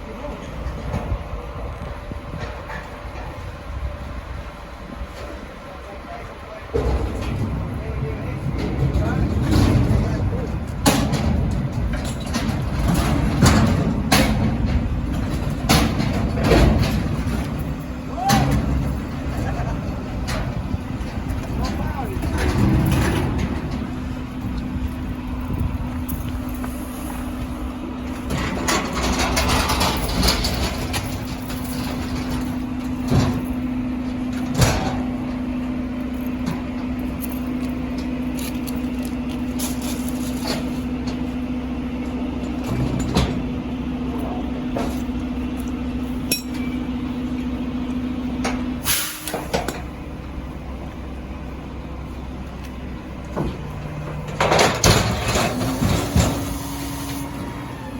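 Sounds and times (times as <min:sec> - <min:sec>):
garbage truck engine and hydraulics hum: 0:00.0 - 0:57.9
metal clanks and knocks: 0:06.7 - 0:24.6, 0:28.1 - 0:35.4, 0:42.4 - 0:43.6, 0:46.2 - 0:46.8, 0:53.2 - 0:56.5.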